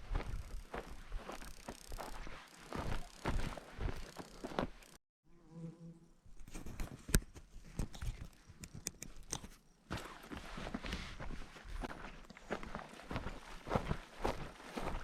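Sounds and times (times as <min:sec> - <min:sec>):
footsteps crunching on stony ground: 0:00.0 - 0:05.0, 0:09.9 - 0:15.0
fly buzzing: 0:00.8 - 0:06.4
sharp clicks: 0:07.0 - 0:09.6.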